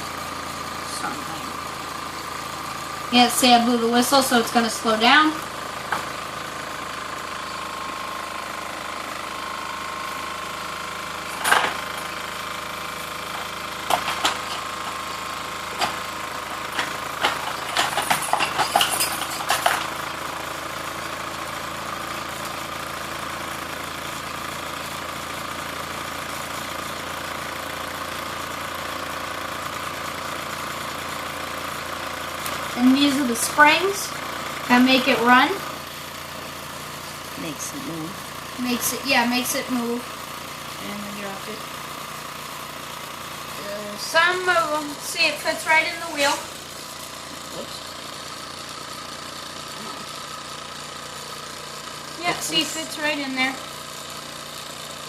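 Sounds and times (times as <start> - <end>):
small steam engine running: 0.0 - 55.0
sharp clicks and rattles: 11.3 - 12.1, 13.2 - 15.1, 15.7 - 20.3.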